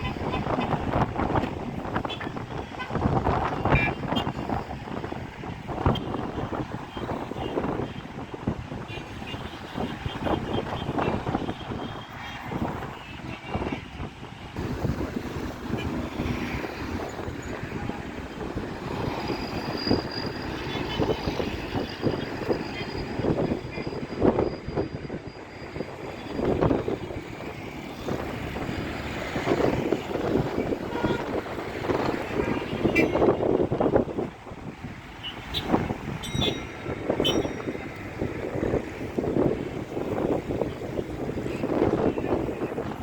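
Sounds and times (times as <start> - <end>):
road traffic passing: 0.0 - 43.0.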